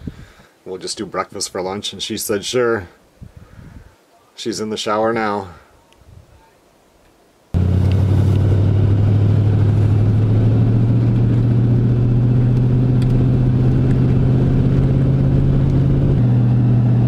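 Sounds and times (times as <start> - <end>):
vehicle driving drone: 7.6 - 17.0.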